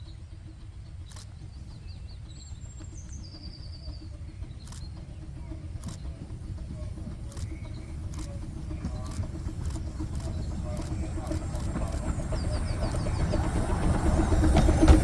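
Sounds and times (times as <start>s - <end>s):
steady low rumble: 0.0s - 15.0s
sharp clicks: 1.1s - 1.4s, 4.6s - 5.0s, 5.8s - 6.2s, 7.2s - 13.3s.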